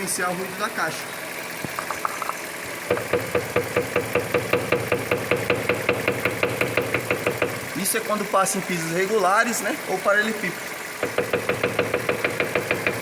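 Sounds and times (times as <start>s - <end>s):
car engine running: 0.0s - 13.0s
steering box knocking: 1.6s - 7.6s, 11.0s - 13.0s.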